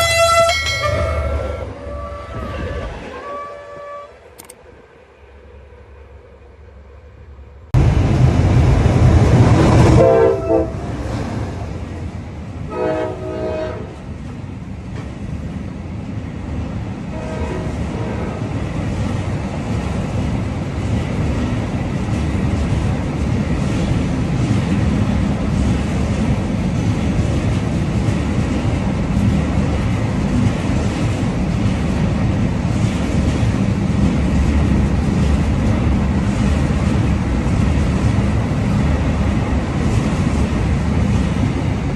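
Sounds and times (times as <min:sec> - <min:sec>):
locomotive horn: 0:00.0 - 0:04.2, 0:09.8 - 0:10.9, 0:12.7 - 0:14.0, 0:17.1 - 0:18.5
train wagons rumbling past: 0:00.0 - 0:41.9.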